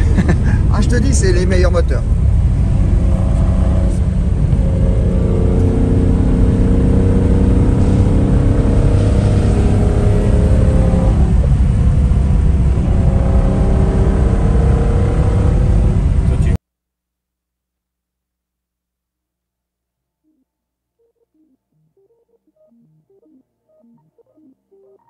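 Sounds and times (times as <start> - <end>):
car engine rumbling: 0.0 - 16.6.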